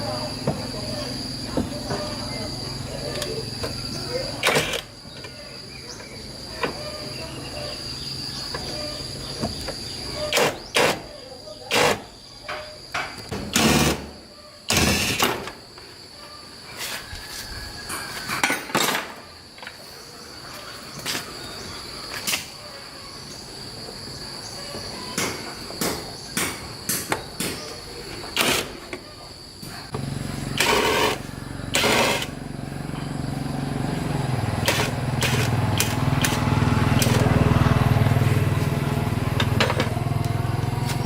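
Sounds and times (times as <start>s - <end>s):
engine running: 29.9s - 41.0s.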